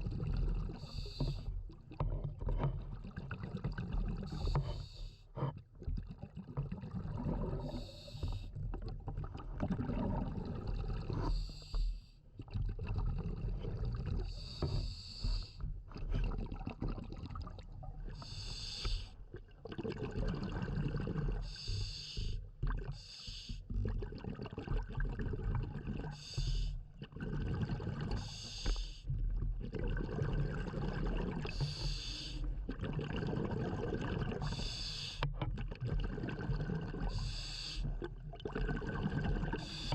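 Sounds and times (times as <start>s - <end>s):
gurgling bubbles: 0.0s - 39.9s
regulator breath hiss: 18.3s - 19.1s, 31.6s - 32.4s, 34.5s - 35.2s, 37.2s - 37.8s.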